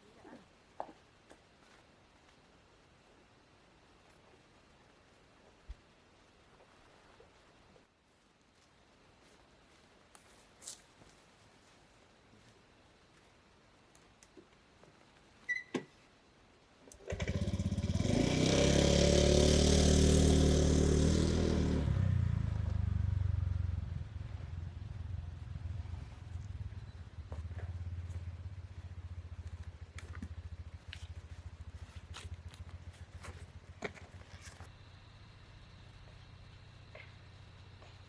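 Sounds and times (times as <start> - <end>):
motorcycle engine starting and revving: 16.9 - 36.7.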